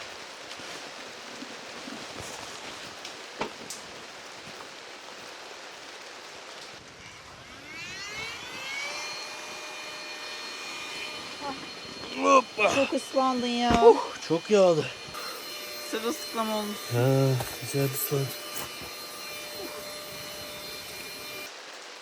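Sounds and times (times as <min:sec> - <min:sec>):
steady rain: 0:00.0 - 0:22.0
small motor whining and humming: 0:06.9 - 0:21.5.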